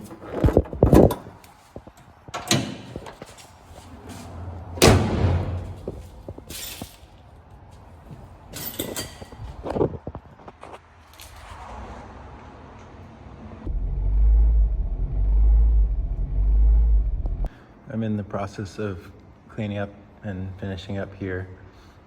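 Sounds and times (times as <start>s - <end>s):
car door opening and slamming: 4.7s - 6.0s
short low rumble: 13.7s - 17.5s.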